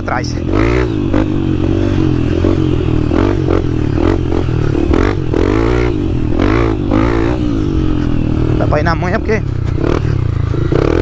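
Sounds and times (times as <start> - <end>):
dirt bike engine revving: 0.0 - 11.0
bike knocking and clattering: 9.3 - 11.0.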